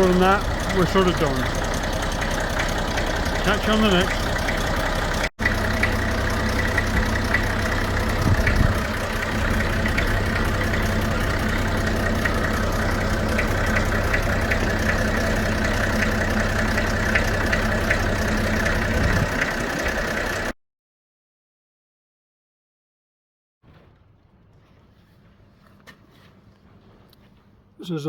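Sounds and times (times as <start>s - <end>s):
tractor diesel engine running: 0.0s - 20.6s.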